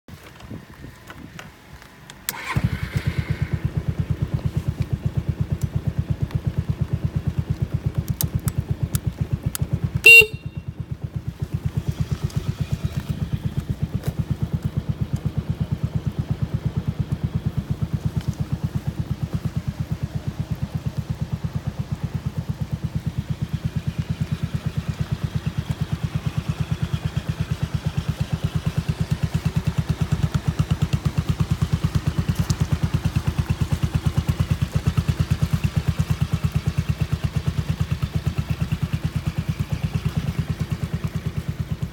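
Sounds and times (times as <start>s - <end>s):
scooter engine idling: 0.7s - 41.9s
short loud horn beep: 10.0s - 10.7s.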